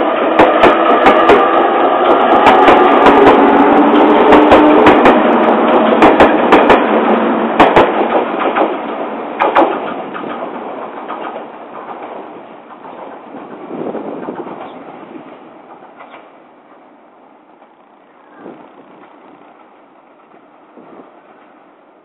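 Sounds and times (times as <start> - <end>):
train wheels clacking: 0.0 - 16.4
train running noise: 0.0 - 22.0.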